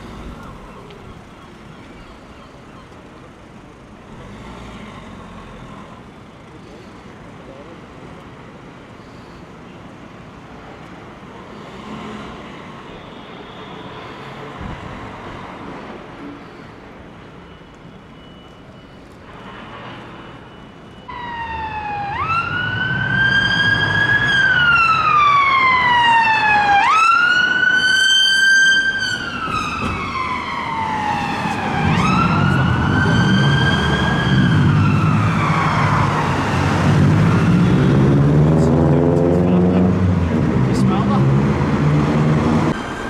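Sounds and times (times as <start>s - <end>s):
vehicle engine: 0.0s - 12.8s, 29.5s - 43.0s
traffic noise: 0.0s - 43.0s
emergency siren wailing: 15.6s - 43.0s.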